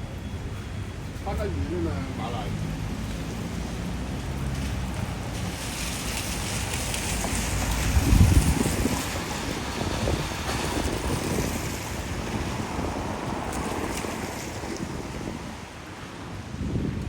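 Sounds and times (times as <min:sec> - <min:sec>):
wind buffeting microphone: 0:05.0 - 0:17.0
storm wind gusting: 0:06.2 - 0:17.0.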